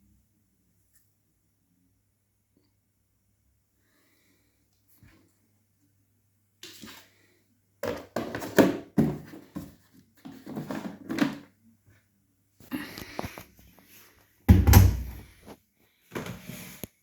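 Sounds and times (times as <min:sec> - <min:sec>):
handling knocks and rustles: 0:07.8 - 0:11.6.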